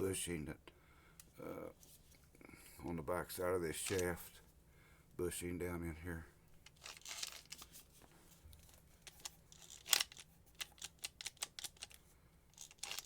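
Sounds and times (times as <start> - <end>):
angle grinder parts clicking: 6.6 - 7.7, 8.6 - 13.0.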